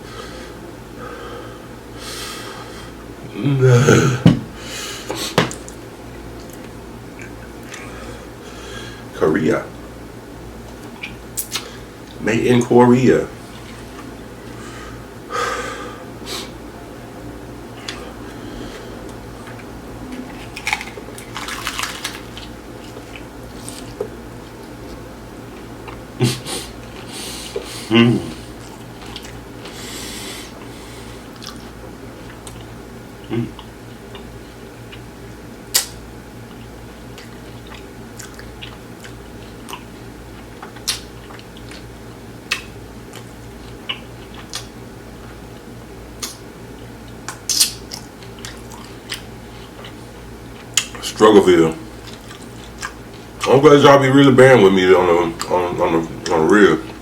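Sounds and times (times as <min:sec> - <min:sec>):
wet chewing and mouth smacks: 0:28.6 - 0:29.8, 0:31.3 - 0:34.3, 0:35.7 - 0:41.9, 0:42.5 - 0:45.4, 0:46.2 - 0:46.4, 0:47.0 - 0:51.1, 0:52.0 - 0:53.5.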